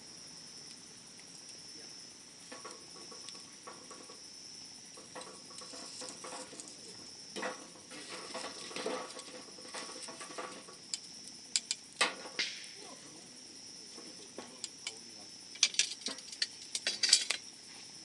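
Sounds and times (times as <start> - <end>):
insect trill: 0.0 - 18.0
wood fire crackling: 0.0 - 18.0.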